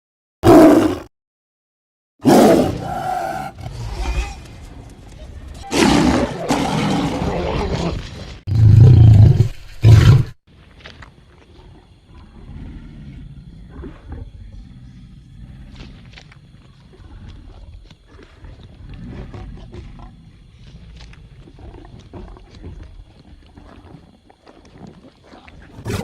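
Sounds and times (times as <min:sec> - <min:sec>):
tiger roaring: 0:00.4 - 0:01.1, 0:02.2 - 0:04.3, 0:05.7 - 0:10.3, 0:25.7 - 0:26.0
tiger growling low: 0:02.2 - 0:04.4, 0:11.4 - 0:26.0.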